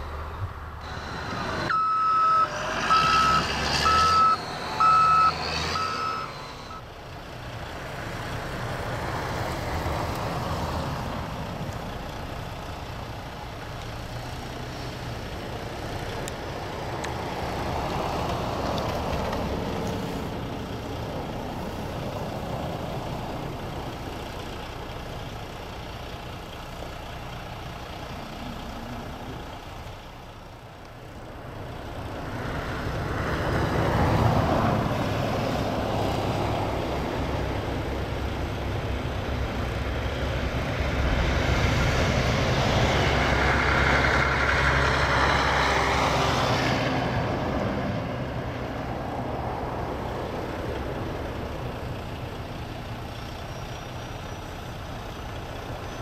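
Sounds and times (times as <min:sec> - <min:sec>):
rush of noise: 0:00.0 - 0:06.8
large vehicle engine running: 0:00.0 - 0:56.0.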